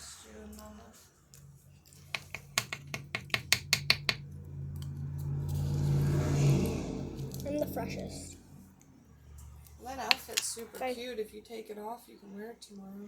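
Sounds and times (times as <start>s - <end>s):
steady low hum: 1.4s - 9.8s
sharp clicks or taps: 2.2s - 4.2s.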